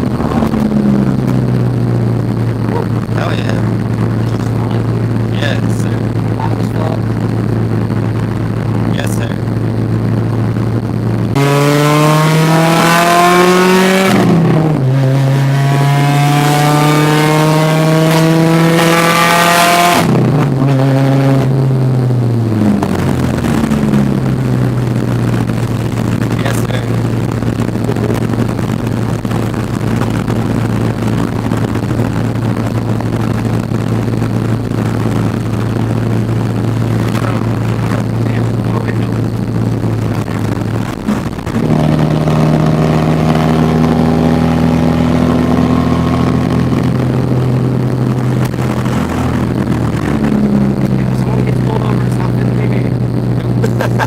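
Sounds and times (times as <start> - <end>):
steady low drone: 0.0 - 18.8, 20.0 - 54.0
car engine accelerating hard: 0.0 - 54.0.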